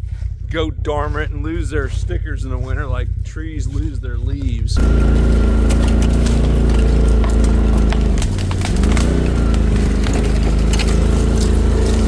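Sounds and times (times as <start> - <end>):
engine running under load: 0.0 - 12.0
sharp clicks and knocks: 4.8 - 12.0.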